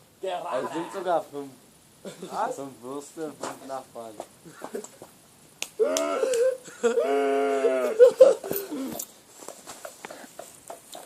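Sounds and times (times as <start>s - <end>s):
person wailing: 0.4s - 1.1s, 5.8s - 8.9s
short vocal noises: 5.8s - 9.0s.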